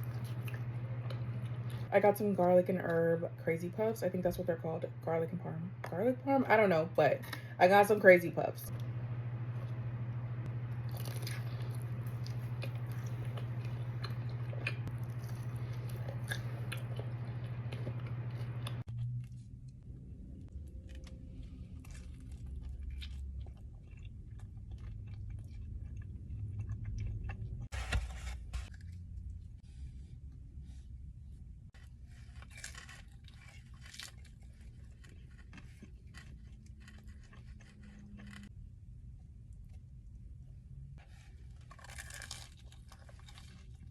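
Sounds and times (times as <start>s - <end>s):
chewing soft food: 0.0s - 1.9s, 10.6s - 19.8s, 20.5s - 27.7s, 31.7s - 38.5s, 41.0s - 43.9s
low hum: 0.0s - 43.9s.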